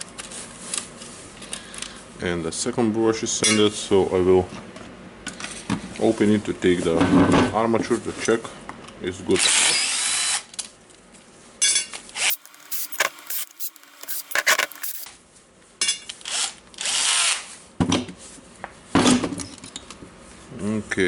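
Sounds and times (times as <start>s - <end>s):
metal parts clicking and scraping: 12.3s - 15.1s
small power tool running: 12.3s - 15.1s.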